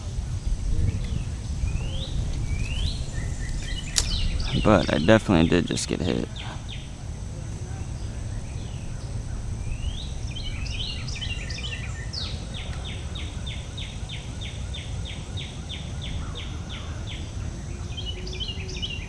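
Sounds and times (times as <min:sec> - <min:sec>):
steady low rumble: 0:00.0 - 0:14.4
songbird singing: 0:00.0 - 0:19.0.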